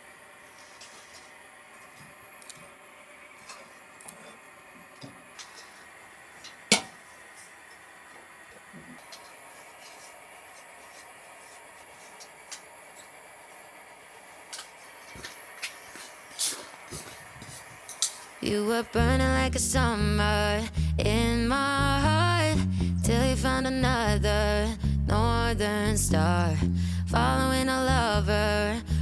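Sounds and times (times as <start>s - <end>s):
faint steady hiss: 0.0s - 20.9s.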